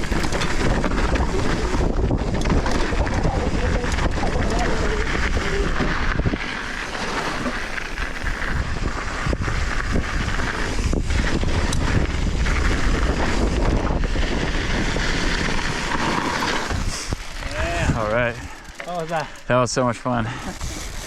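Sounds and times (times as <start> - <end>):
bike knocks and rattles: 0.0 - 4.8
bike tyre noise on dirt: 0.0 - 21.0
wind buffeting microphone: 0.0 - 21.0.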